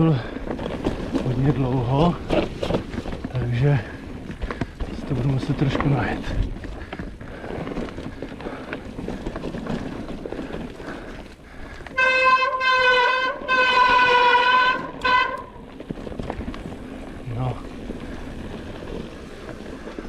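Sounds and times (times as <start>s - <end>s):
wind and riding noise: 0.0s - 20.0s
horn blasts: 11.9s - 15.6s.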